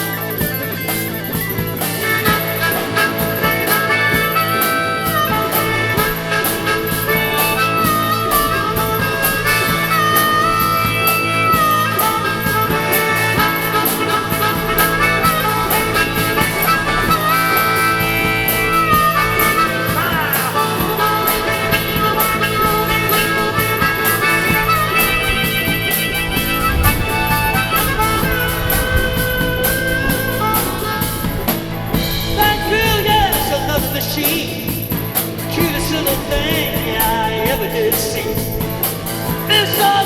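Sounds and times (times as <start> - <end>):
live blues-rock band playing: 0.0 - 40.0.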